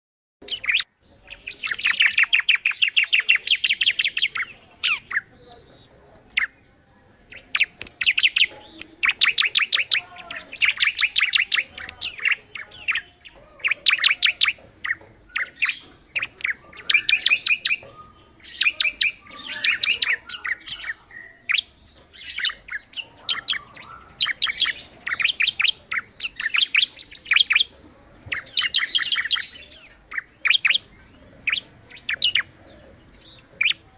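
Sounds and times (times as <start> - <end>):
bird singing high ticking notes: 0.4 - 33.9.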